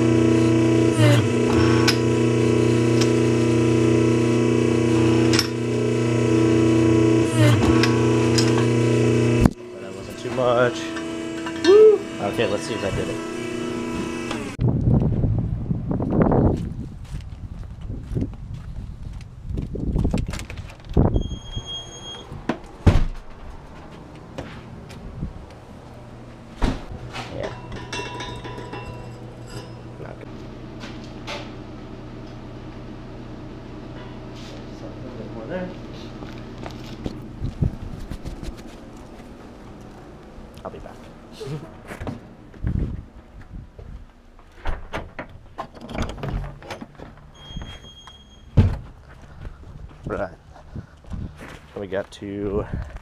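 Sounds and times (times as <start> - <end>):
welder electric buzz: 0.0 - 14.6, 26.6 - 34.2
sharp knocks and clanks: 26.6 - 30.0.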